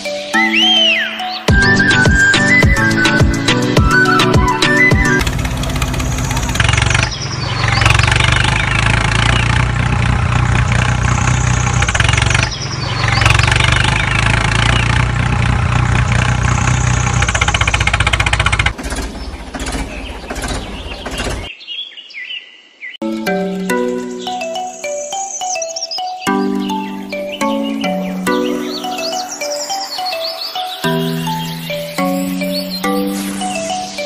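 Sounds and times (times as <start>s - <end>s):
light tuned music notes: 0.0s - 6.4s, 23.0s - 34.0s
tractor engine running: 1.5s - 21.5s.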